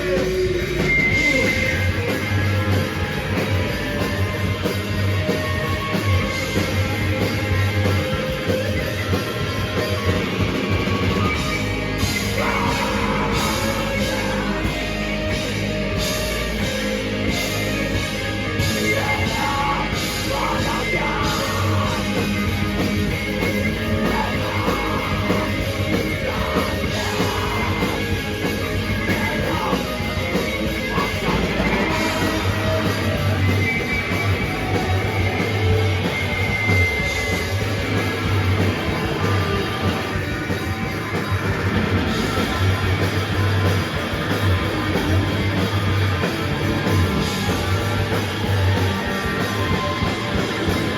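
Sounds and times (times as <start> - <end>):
rock band playing loud: 0.0 - 50.9
shouted vocals: 10.8 - 15.6, 18.6 - 22.8.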